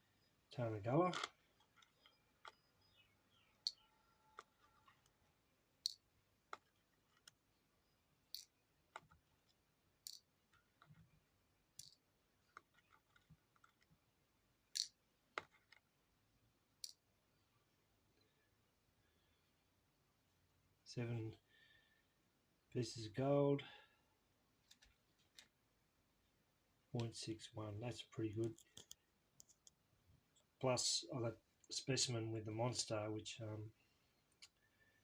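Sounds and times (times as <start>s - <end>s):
light clicks and taps: 28.3s - 29.8s.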